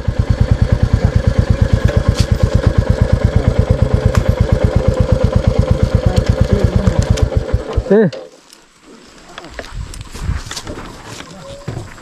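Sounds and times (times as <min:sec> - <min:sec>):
motorcycle engine thumping: 0:00.0 - 0:07.9.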